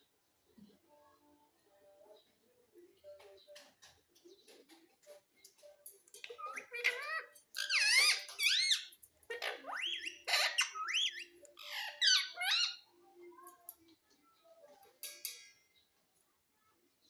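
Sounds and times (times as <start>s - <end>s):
parrot chatter: 4.5s - 13.7s
parrot squawk: 6.3s - 12.9s.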